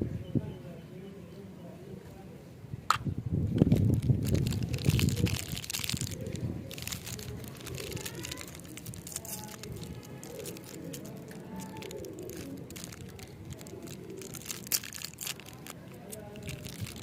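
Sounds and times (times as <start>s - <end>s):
crinkling and rustling: 3.6s - 17.0s.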